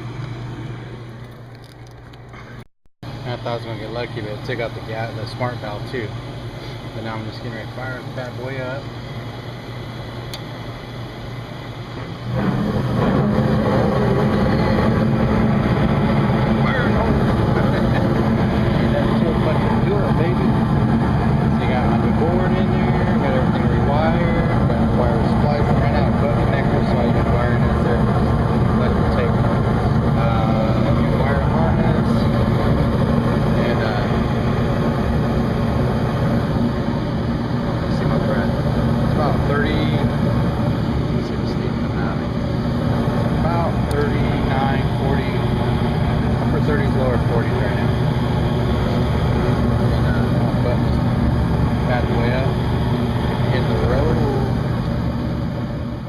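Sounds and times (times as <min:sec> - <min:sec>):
rooftop hvac unit running: 0:00.0 - 0:56.0
rushing air: 0:08.8 - 0:22.1.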